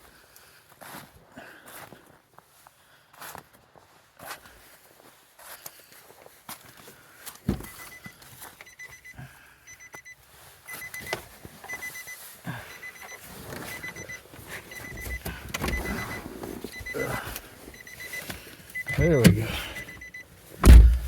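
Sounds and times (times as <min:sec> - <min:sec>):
vehicle warning chime beeping: 0:07.6 - 0:21.0
car door shutting: 0:14.8 - 0:16.6, 0:18.9 - 0:20.0, 0:20.6 - 0:21.0
knocks and rustling: 0:20.6 - 0:21.0
loud thump: 0:20.6 - 0:21.0.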